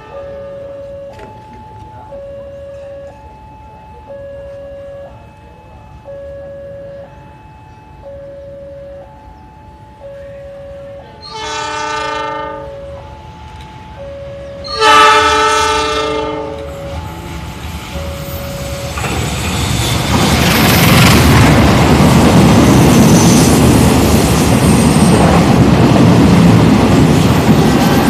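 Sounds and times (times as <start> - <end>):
train rumble and wheel clatter: 0.0 - 28.0
train horn blasts: 10.3 - 13.1, 14.4 - 17.2.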